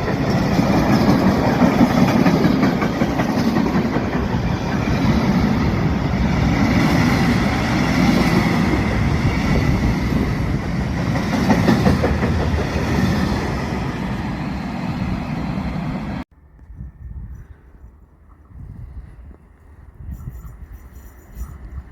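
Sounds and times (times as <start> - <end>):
freight train passing: 0.0 - 16.2.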